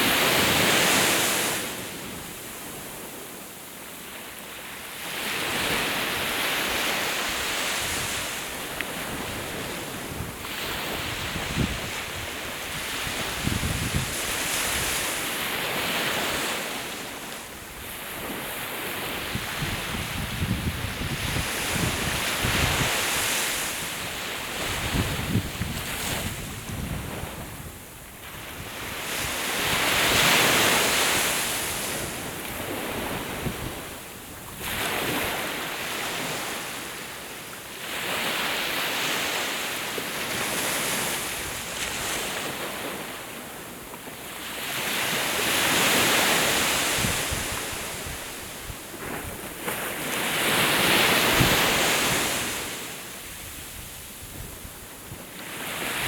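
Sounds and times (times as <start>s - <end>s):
wind buffeting microphone: 9.0s - 15.1s, 19.0s - 30.3s, 46.6s - 49.7s.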